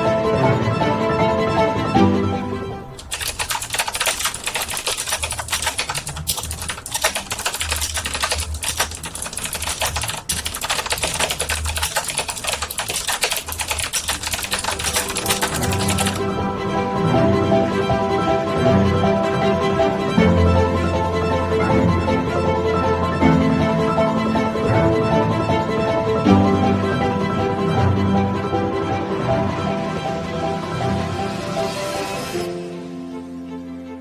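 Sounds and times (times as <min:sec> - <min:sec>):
violin music: 0:00.0 - 0:03.0, 0:14.7 - 0:34.0
fast typing on computer keyboard: 0:03.0 - 0:16.3.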